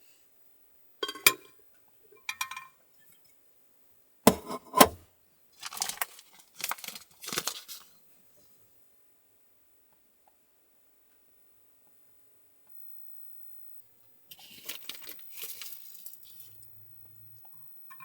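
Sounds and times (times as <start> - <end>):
small hard objects clinking: 14.3 - 16.7.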